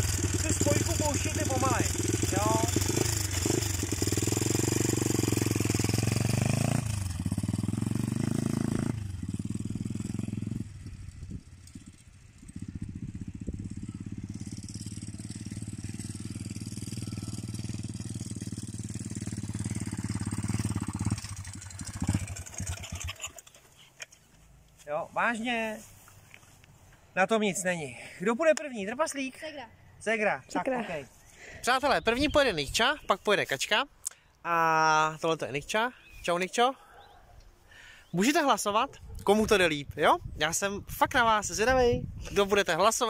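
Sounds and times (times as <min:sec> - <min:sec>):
motorbike engine running: 0:00.0 - 0:23.4.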